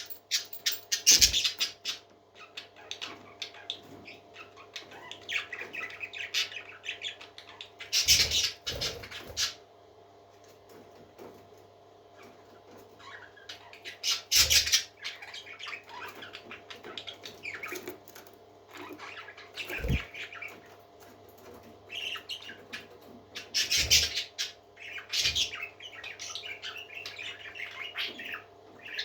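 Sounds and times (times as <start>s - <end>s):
parrots chirping and squawking: 0.0s - 9.7s, 12.1s - 29.0s
steady low hum: 18.4s - 22.2s.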